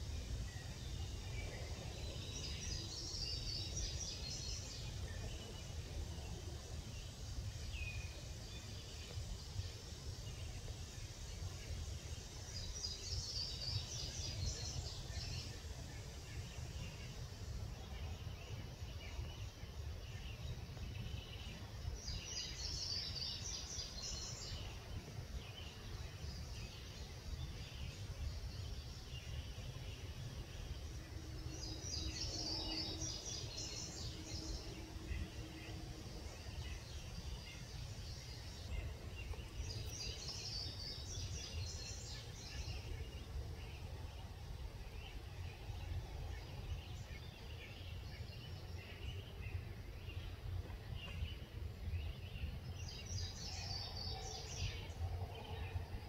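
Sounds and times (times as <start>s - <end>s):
songbird singing rapid notes: 0.0s - 56.0s
steady low rumble: 24.2s - 53.9s.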